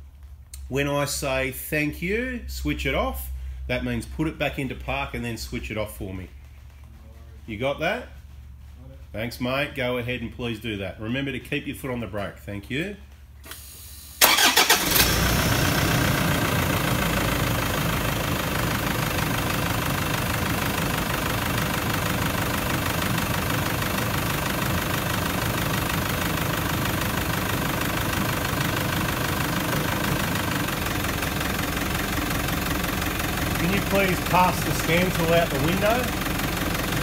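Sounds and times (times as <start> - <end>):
engine starter cranking: 14.2 - 16.6, 33.5 - 36.1
car engine idling: 14.2 - 37.0.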